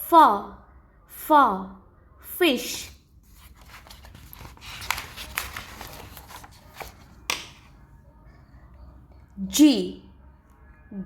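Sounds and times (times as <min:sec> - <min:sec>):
rustling handling noise: 0:03.1 - 0:07.7.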